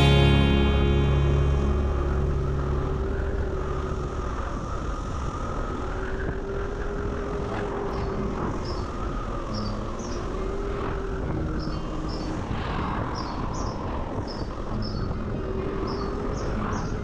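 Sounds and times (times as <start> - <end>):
wind and tyre noise: 0.0 - 17.0
faint wavering motor whine: 0.9 - 14.0.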